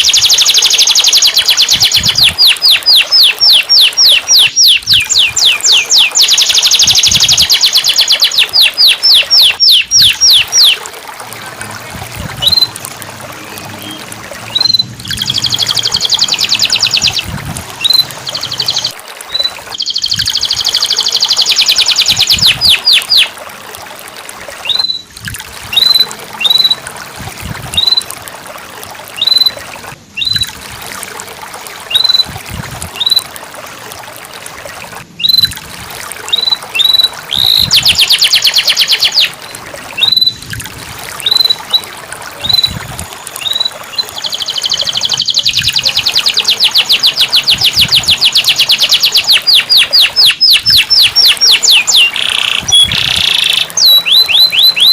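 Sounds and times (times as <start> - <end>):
canary singing: 0.0 - 10.8, 13.4 - 23.3, 30.2 - 30.5, 36.3 - 39.3, 41.2 - 54.9.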